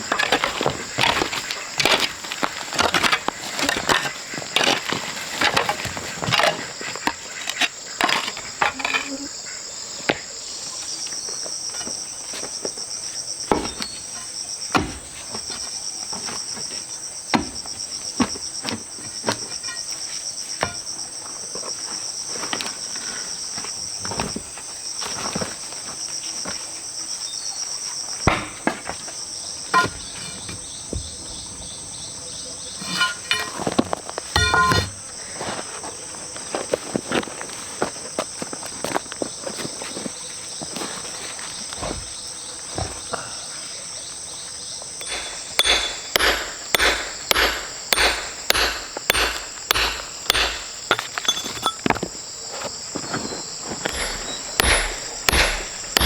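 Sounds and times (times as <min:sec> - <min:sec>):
high-pitched insect chorus: 0:00.0 - 0:56.0
knocks and thuds: 0:45.0 - 0:52.1, 0:53.9 - 0:56.0.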